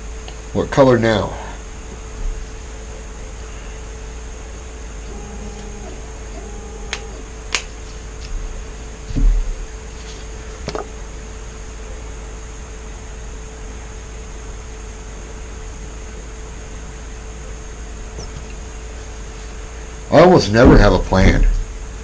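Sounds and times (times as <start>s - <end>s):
steady background hum: 0.0s - 22.0s
dull thump: 9.1s - 9.7s, 20.6s - 21.8s.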